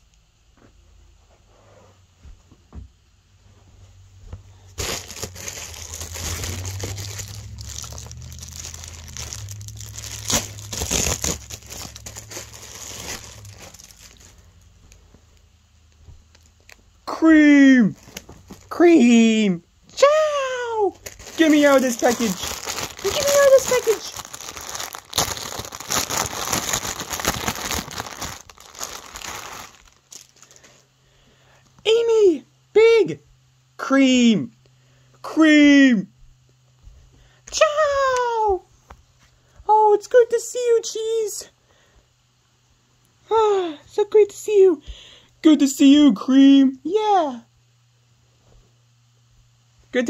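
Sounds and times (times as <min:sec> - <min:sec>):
packaging crinkling and rustling: 0:04.7 - 0:15.2, 0:16.2 - 0:16.9, 0:17.9 - 0:18.7, 0:21.0 - 0:30.8.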